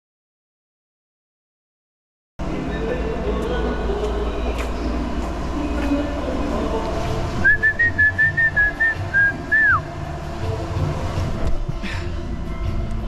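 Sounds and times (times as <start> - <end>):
background music: 2.4 - 13.0
person whistling a tune: 7.4 - 9.8.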